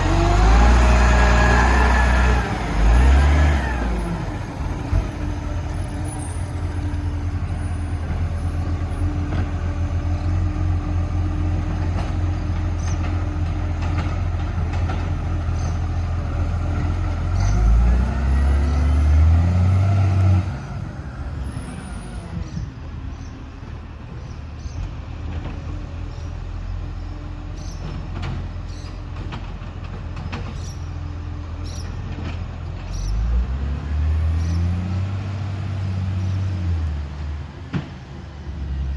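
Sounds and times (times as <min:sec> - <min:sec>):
garbage truck diesel engine revving: 0:00.0 - 0:22.4.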